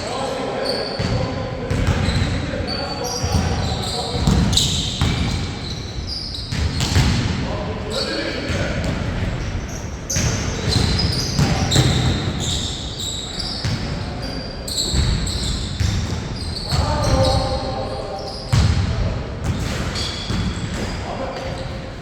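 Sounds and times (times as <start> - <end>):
sneakers squeaking on floor: 0.0 - 22.0
basketball bouncing on hard court: 1.0 - 2.4, 3.2 - 5.6, 6.5 - 7.4, 10.1 - 12.6, 14.9 - 17.4, 18.5 - 18.8.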